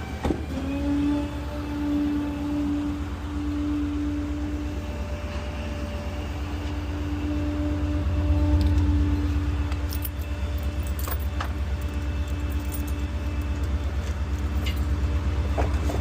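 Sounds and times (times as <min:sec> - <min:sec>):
garbage truck engine rumble: 0:00.0 - 0:16.0.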